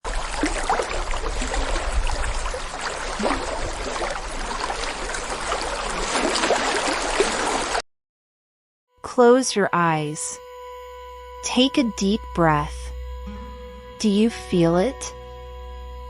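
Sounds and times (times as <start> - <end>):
stream water rushing: 0.1 - 7.8.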